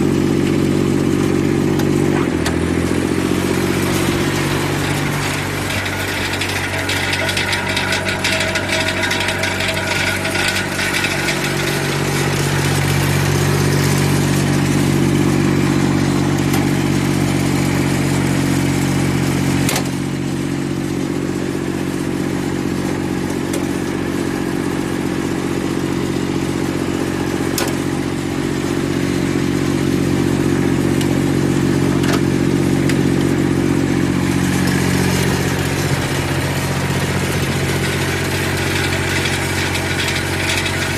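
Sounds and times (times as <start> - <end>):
snowblower diesel engine running: 0.0 - 40.9.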